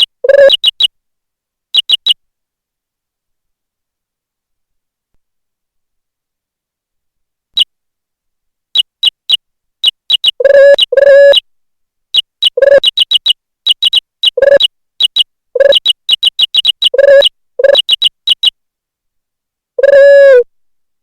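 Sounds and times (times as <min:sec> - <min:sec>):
electronic keypress chirps: 0:12.4 - 0:18.5.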